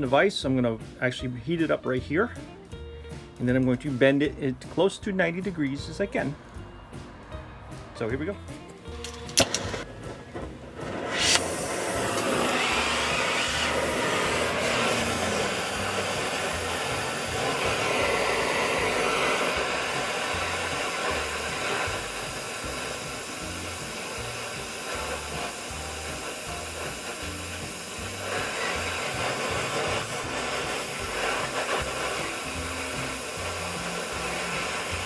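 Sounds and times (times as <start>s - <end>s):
gas torch flame hissing: 8.8s - 35.0s.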